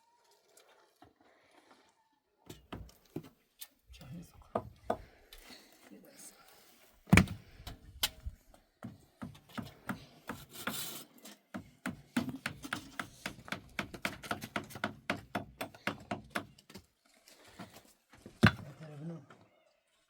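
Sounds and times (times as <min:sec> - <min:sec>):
knocks and taps: 0:11.5 - 0:16.8.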